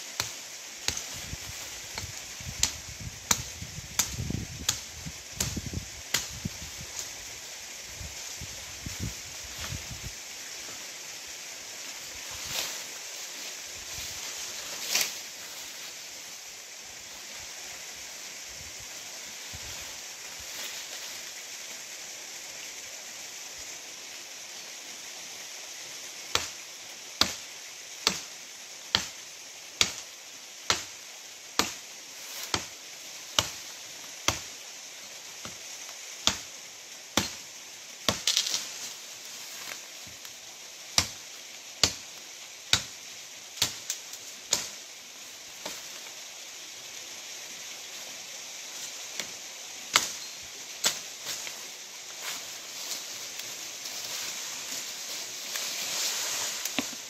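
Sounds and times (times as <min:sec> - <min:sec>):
sharp chopping strikes: 0:02.0 - 0:06.4, 0:26.3 - 0:26.6, 0:27.2 - 0:27.4, 0:28.0 - 0:28.3, 0:28.9 - 0:29.2, 0:29.8 - 0:30.0, 0:30.7 - 0:31.0, 0:31.6 - 0:31.8, 0:32.4 - 0:32.7, 0:33.4 - 0:33.6, 0:34.3 - 0:34.5, 0:36.2 - 0:36.5, 0:37.2 - 0:37.4, 0:38.1 - 0:38.5, 0:41.0 - 0:41.2, 0:41.8 - 0:42.0, 0:42.7 - 0:42.9, 0:43.6 - 0:43.8, 0:44.5 - 0:44.7, 0:49.9 - 0:50.2.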